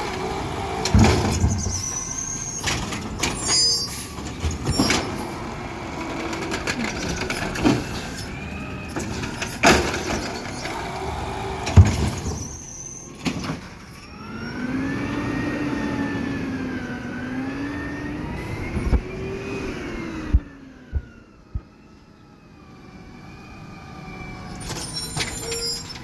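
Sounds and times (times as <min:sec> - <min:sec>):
garbage truck bangs and clanks: 0:00.0 - 0:14.5, 0:24.6 - 0:26.0.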